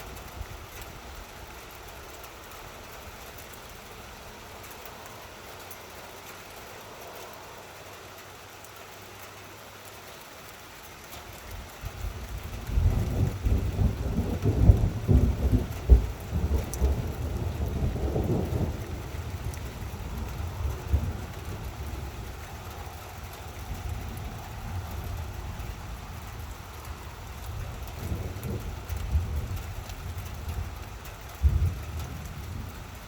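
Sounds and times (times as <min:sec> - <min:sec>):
steady rain: 0:00.0 - 0:33.0
thunder rumbling: 0:11.9 - 0:33.0.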